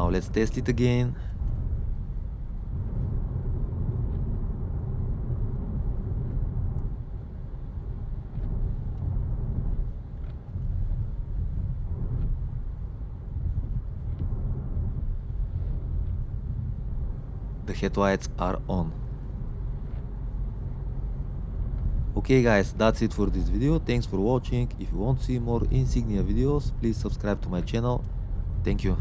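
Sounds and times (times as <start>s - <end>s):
car cabin rumble: 0.0s - 29.0s
faint light ticks: 6.2s - 7.1s.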